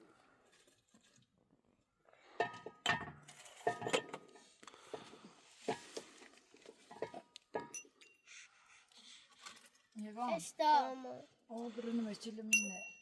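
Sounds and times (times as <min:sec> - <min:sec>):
metal cookware clinking: 0:02.3 - 0:04.5, 0:06.9 - 0:08.0, 0:12.5 - 0:13.0.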